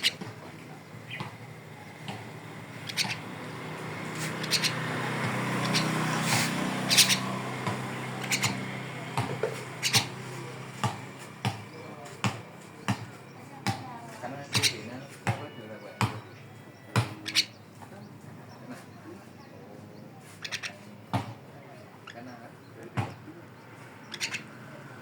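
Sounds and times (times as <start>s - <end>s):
bird giving harsh calls: 0.0s - 0.3s, 1.9s - 9.0s, 9.6s - 10.8s, 14.4s - 14.9s, 17.1s - 17.7s, 20.3s - 20.9s, 24.0s - 24.6s.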